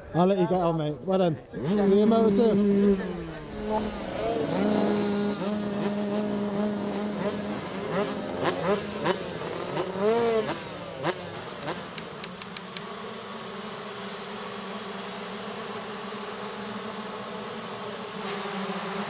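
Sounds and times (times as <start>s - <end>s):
motocross bikes revving: 1.4s - 12.9s
sharp ticks: 11.0s - 12.9s.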